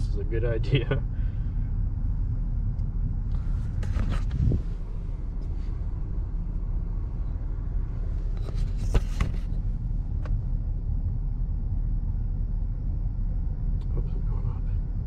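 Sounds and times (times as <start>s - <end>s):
wind buffeting microphone: 1.7s - 11.7s.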